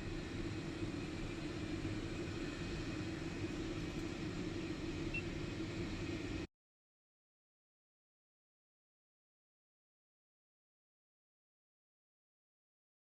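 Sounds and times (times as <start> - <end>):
aircraft engine rumble with hiss: 0.0 - 6.5.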